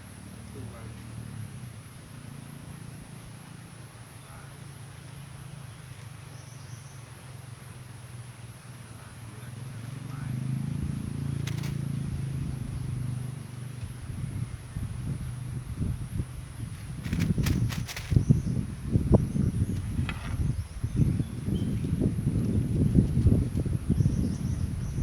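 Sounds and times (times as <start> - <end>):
sharp click: 11.4 - 11.8.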